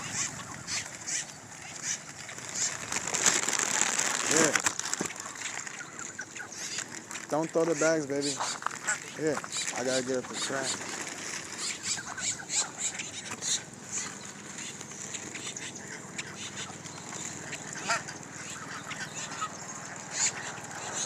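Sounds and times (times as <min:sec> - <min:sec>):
geese calling: 0:00.0 - 0:21.0.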